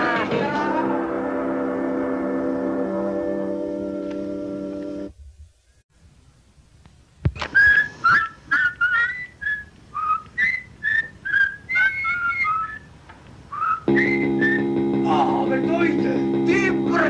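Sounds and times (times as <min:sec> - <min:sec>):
person whistling a tune: 0:07.4 - 0:12.9, 0:13.5 - 0:14.7.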